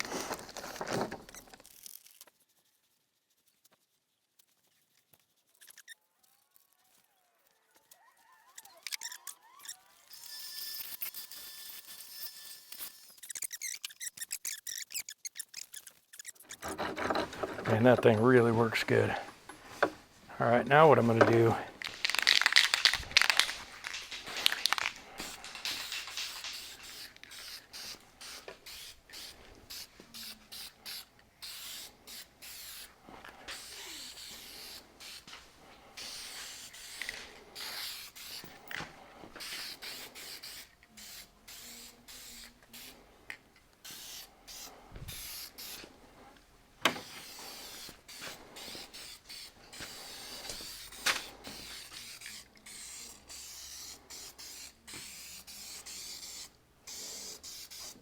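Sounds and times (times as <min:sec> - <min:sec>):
masking tape tearing: 0:00.0 - 0:02.4, 0:05.3 - 0:11.9, 0:21.3 - 0:35.2.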